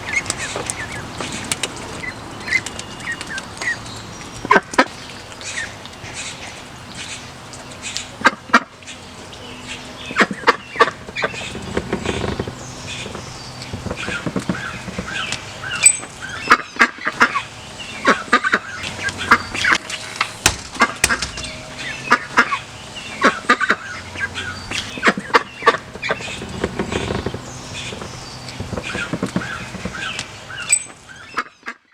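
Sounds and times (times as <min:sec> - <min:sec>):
ducklings peeping: 0:00.0 - 0:31.8
adult ducks calling: 0:00.0 - 0:31.9.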